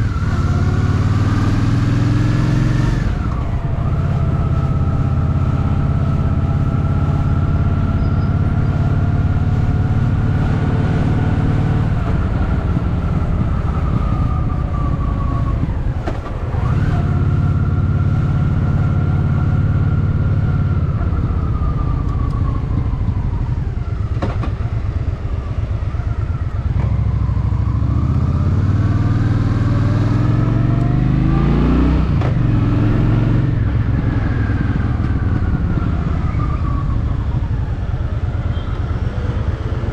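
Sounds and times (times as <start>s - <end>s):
motorcycle engine running: 0.0s - 30.3s.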